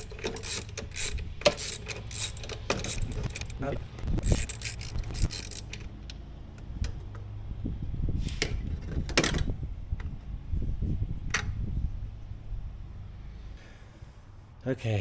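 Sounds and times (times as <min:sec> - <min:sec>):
metal tools clinking and scraping: 0:00.0 - 0:06.7.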